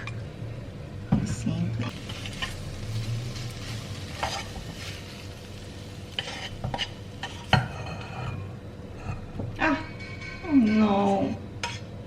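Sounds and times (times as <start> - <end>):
food sizzling in a frying pan: 1.4 - 8.6
stirring and scraping in a pan: 1.9 - 9.2, 11.6 - 11.9.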